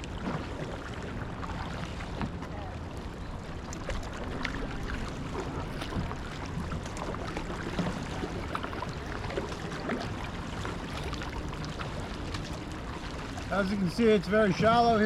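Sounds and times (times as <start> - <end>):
kayak paddles splashing water: 0.0 - 15.0
water dripping: 5.6 - 12.5.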